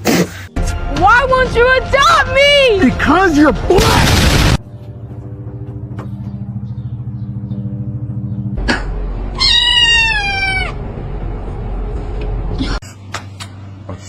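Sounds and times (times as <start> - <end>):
low pulsing hum: 4.0 - 13.8
cat meowing: 9.4 - 10.8.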